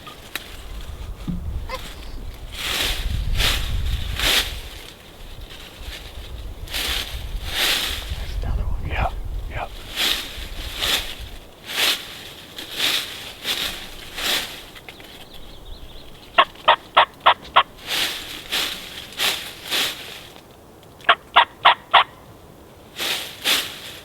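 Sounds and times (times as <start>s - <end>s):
turkeys calling: 0.0s - 2.8s, 15.4s - 18.2s, 21.0s - 22.2s.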